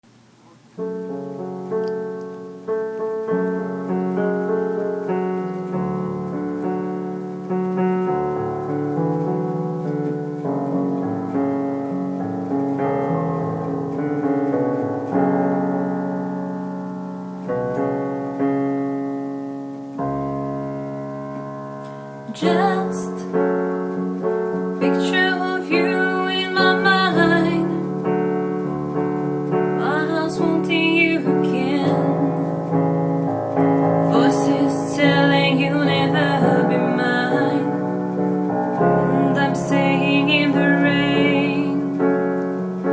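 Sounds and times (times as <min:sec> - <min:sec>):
piano chords ringing: 0:00.0 - 0:42.9
person singing: 0:22.3 - 0:23.5, 0:24.8 - 0:28.1, 0:29.8 - 0:32.6, 0:34.0 - 0:38.0, 0:38.8 - 0:42.2.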